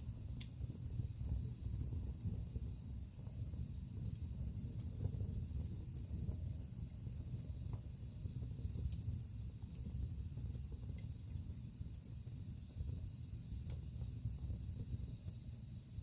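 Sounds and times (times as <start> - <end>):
fire rumbling: 0.0 - 16.0
logs crackling and popping: 4.4 - 6.3.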